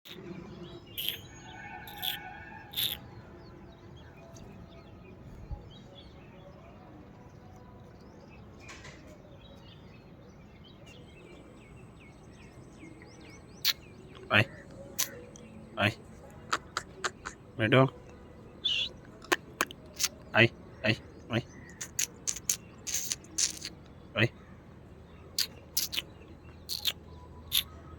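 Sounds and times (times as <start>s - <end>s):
parrot shrill chirps: 1.0s - 3.0s.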